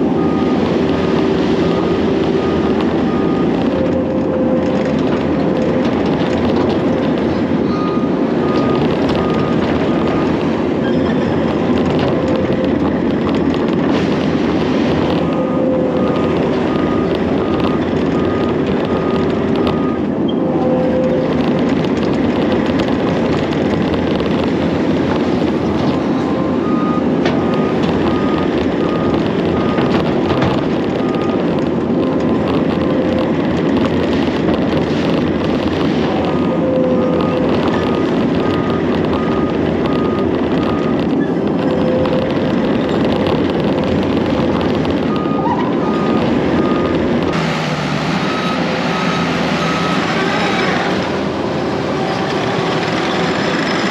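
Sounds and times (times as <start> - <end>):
backup alarm beeping: 0.0 - 12.9, 14.9 - 21.2, 25.9 - 34.0, 36.1 - 50.1
heavy machine engine running: 0.0 - 53.9.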